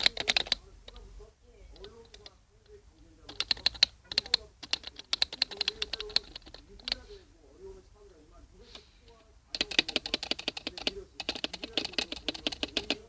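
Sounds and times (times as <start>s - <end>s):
keyboard keystroke clicks: 0.0s - 1.0s, 3.3s - 7.0s, 9.5s - 13.0s.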